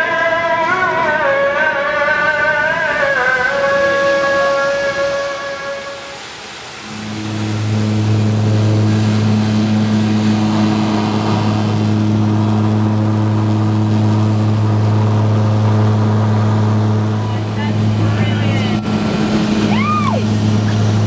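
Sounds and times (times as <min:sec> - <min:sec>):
engine droning steadily: 0:00.0 - 0:21.0.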